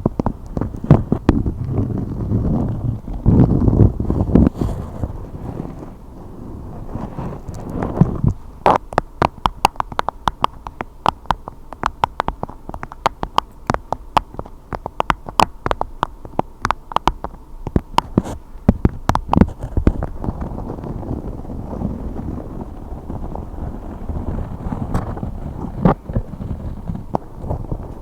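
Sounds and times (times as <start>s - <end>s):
rapid sharp taps: 0.0s - 4.6s, 7.5s - 20.9s.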